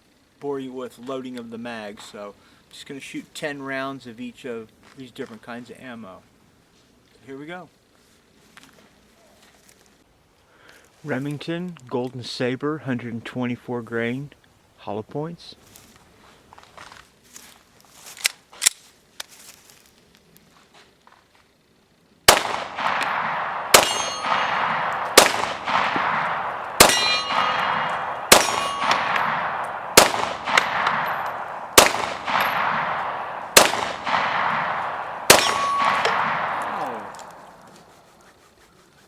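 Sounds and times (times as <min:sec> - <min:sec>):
pistol shots: 0:22.3 - 0:38.0
metallic ring of steel target: 0:22.5 - 0:37.5.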